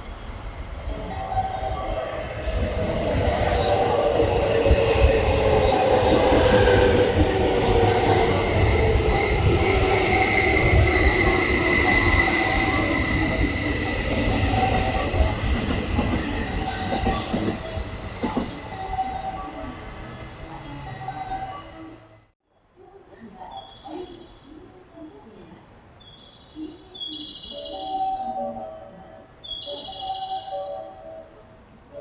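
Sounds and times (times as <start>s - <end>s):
train rolling rumble: 0.0s - 22.3s.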